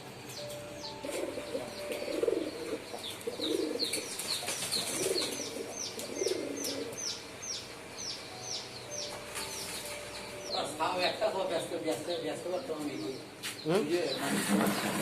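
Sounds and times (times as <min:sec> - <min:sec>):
pigeons cooing: 0:00.0 - 0:13.2, 0:13.8 - 0:15.0
small bird chirping: 0:00.3 - 0:11.2.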